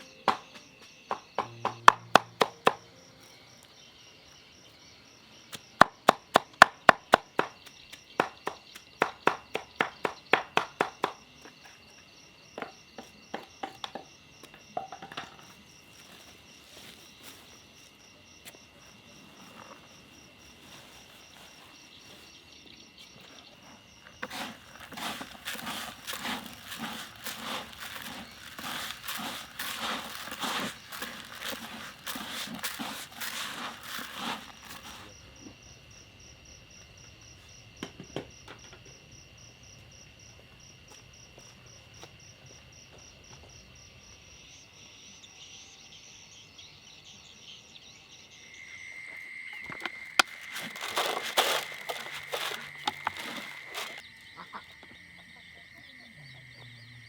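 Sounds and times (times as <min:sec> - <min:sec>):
high insect trilling: 0:24.2 - 0:35.1, 0:49.6 - 0:54.1
scratchy rustling: 0:24.2 - 0:35.1, 0:50.2 - 0:54.0.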